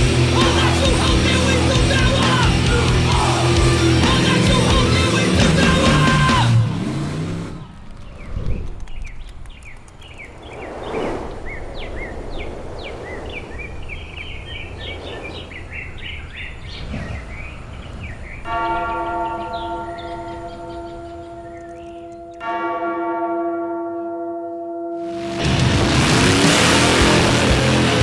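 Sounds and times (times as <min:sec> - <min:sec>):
birds chirping: 0:06.8 - 0:22.6.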